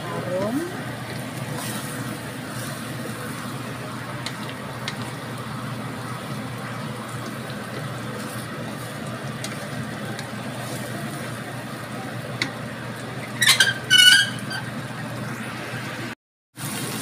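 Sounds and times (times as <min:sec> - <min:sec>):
paste sizzling in hot oil: 0:00.8 - 0:11.9, 0:16.6 - 0:17.0.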